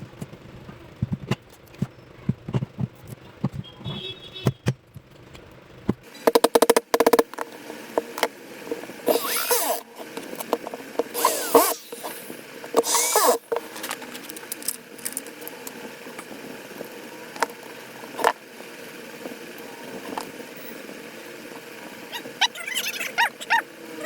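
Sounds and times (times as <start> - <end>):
marble cutter motor spinning up: 6.2 - 18.4.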